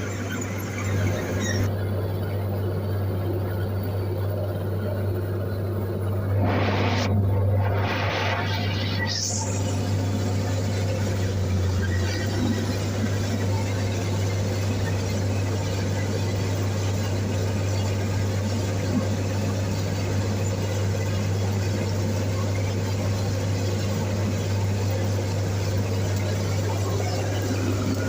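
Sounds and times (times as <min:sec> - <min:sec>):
bulldozer diesel engine droning: 0:00.0 - 0:28.0.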